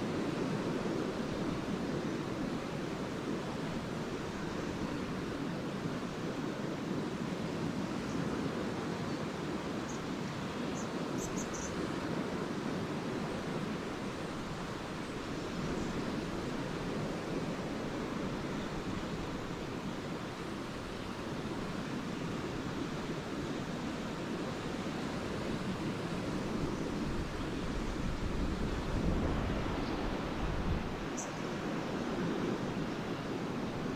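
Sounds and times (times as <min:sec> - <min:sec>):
waves washing on shore: 0:00.0 - 0:33.9
swallows chirping: 0:10.8 - 0:11.8.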